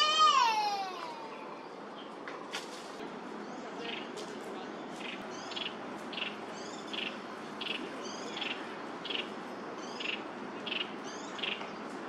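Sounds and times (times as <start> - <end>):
steady background hum: 0.0 - 12.0
small birds calling: 3.4 - 12.0.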